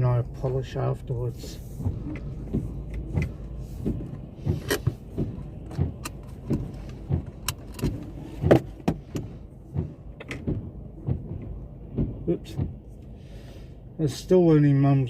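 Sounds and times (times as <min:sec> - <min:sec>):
car cabin rumble: 0:00.0 - 0:15.0
short knocks and clicks: 0:01.8 - 0:12.8.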